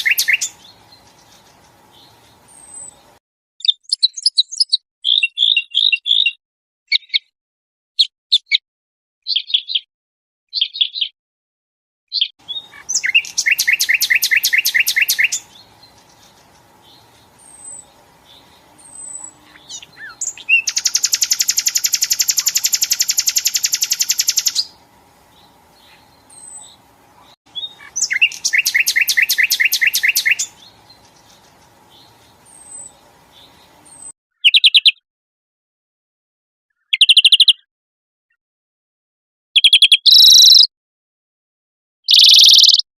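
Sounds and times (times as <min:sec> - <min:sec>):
faint steady hum: 0:00.0 - 0:03.2, 0:12.4 - 0:34.1
songbird rapid trills: 0:00.0 - 0:03.2, 0:12.4 - 0:34.1, 0:42.1 - 0:42.8.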